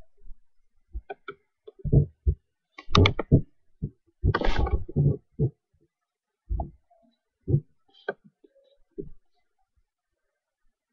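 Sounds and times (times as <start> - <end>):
knocks and bumps: 1.8 - 5.6, 6.5 - 6.8.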